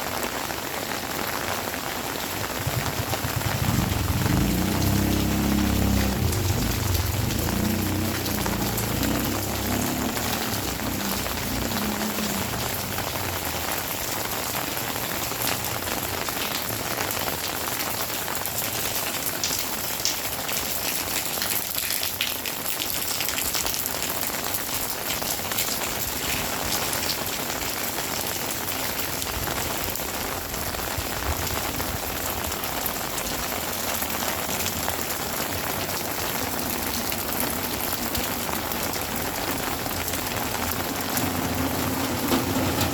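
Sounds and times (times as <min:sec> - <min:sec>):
heavy rain pattering: 0:00.0 - 0:42.9
low rumble: 0:02.6 - 0:13.8.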